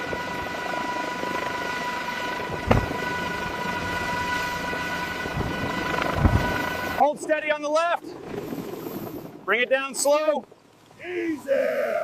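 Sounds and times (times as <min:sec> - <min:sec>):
heavy machinery drone: 0:00.0 - 0:07.0
high steady whine: 0:00.0 - 0:07.0.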